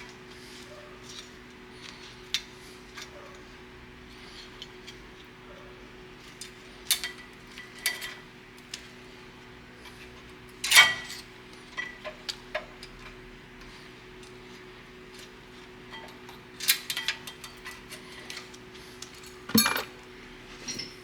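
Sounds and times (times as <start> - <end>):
metallic clinks and taps: 19.5 - 20.0.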